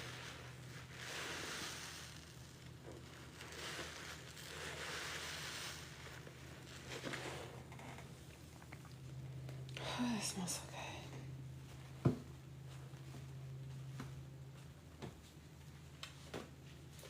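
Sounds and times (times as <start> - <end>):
sponge squishing: 0.0 - 8.8
low steady hum: 0.0 - 17.0.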